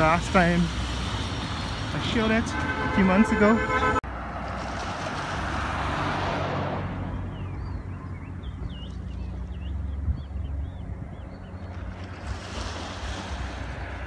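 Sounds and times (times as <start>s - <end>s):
wind or surf rushing: 11.9s - 14.0s.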